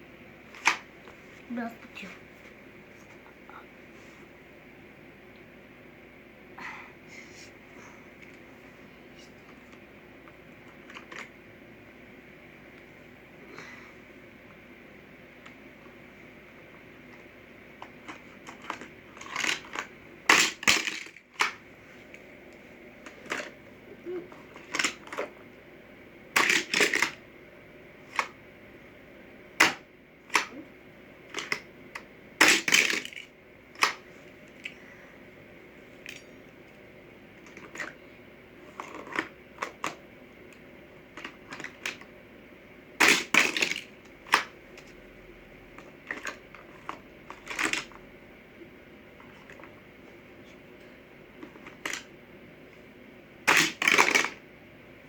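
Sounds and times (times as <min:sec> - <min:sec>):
plastic toy clicks and clacks: 0:18.1 - 0:21.6, 0:24.6 - 0:25.3, 0:26.4 - 0:27.2, 0:31.3 - 0:34.0, 0:43.0 - 0:44.9, 0:46.0 - 0:48.0, 0:53.5 - 0:54.4.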